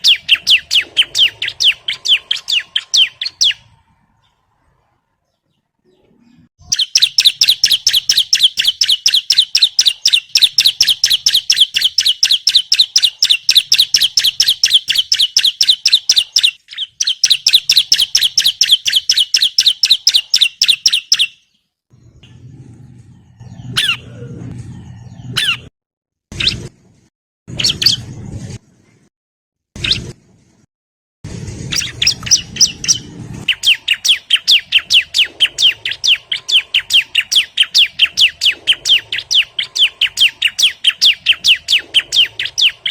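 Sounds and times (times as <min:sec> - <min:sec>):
bird singing rapid high chirps: 0:00.0 - 0:04.5, 0:05.3 - 0:21.7, 0:25.1 - 0:25.7, 0:26.3 - 0:26.7, 0:27.5 - 0:28.1, 0:29.8 - 0:30.2, 0:31.7 - 0:42.9.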